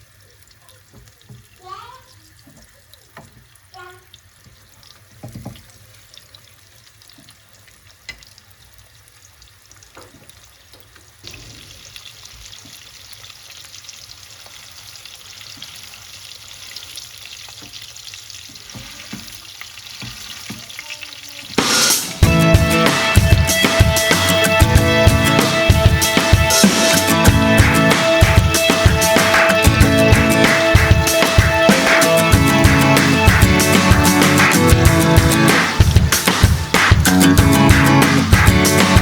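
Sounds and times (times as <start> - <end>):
food sizzling in a pan: 0.0 - 24.7.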